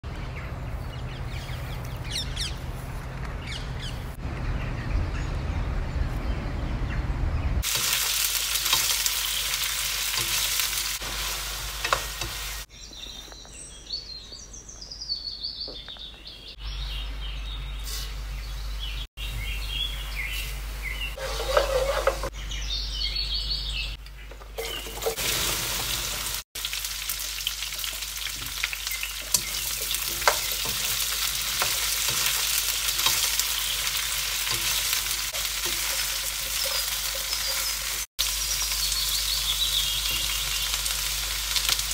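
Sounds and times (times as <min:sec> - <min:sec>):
okra sizzling in oil: 0:07.6 - 0:12.7, 0:20.2 - 0:22.3, 0:24.6 - 0:41.9
seeds sizzling in hot oil: 0:07.6 - 0:12.7, 0:24.6 - 0:41.9
spatula scraping a pan: 0:21.2 - 0:22.3.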